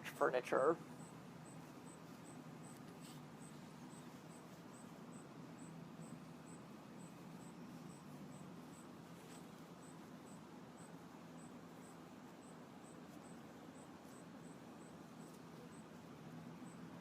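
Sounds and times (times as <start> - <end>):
low steady hum: 0.0 - 17.0
insect chirping: 3.4 - 16.0.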